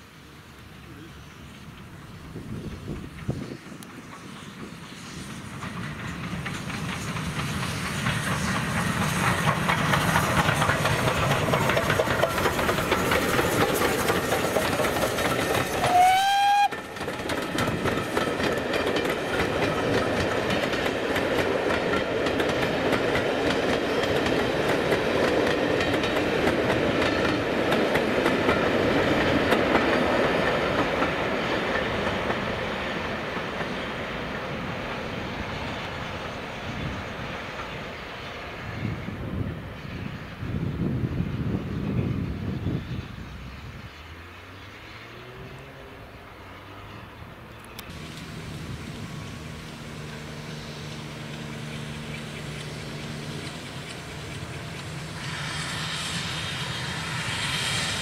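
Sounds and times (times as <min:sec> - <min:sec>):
train wheels clattering on rails: 0:01.4 - 0:45.6, 0:46.3 - 0:58.0
train whistle: 0:15.7 - 0:16.9.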